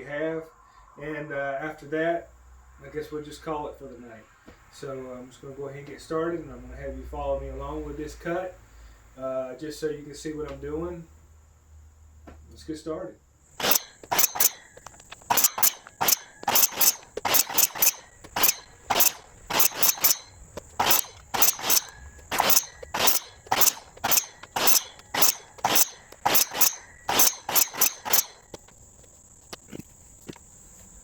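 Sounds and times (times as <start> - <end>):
crickets chirping: 0.2 - 31.0
hand saw cutting wood: 13.6 - 28.8.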